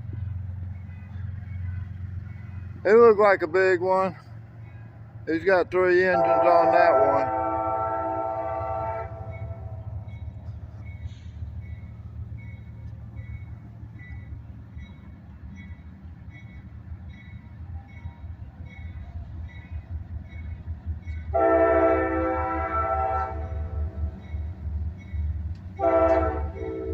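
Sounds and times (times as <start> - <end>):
diesel freight train rumbling: 0.0 - 26.9
crossing bell dinging: 0.1 - 26.9
train air horn blowing: 6.1 - 10.0, 21.3 - 24.1, 25.8 - 26.9.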